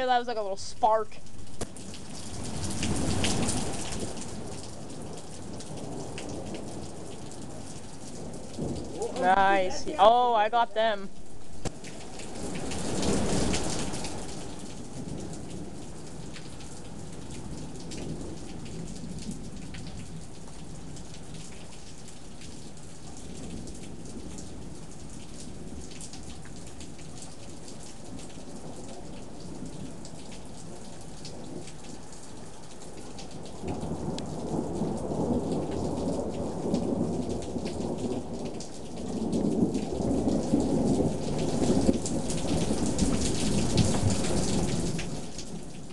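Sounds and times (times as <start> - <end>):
steady rain falling: 0.0 - 45.9
rolling thunder: 1.8 - 9.4, 33.5 - 45.9.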